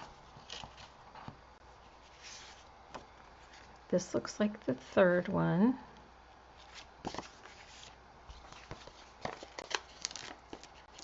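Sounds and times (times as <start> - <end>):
paper taps and rustles: 8.5 - 10.7.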